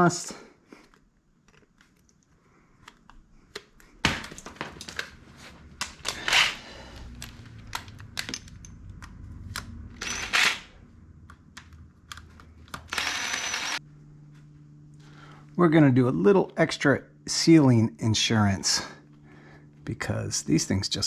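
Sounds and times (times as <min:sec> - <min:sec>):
metal clicks and clinks: 0:07.2 - 0:09.2.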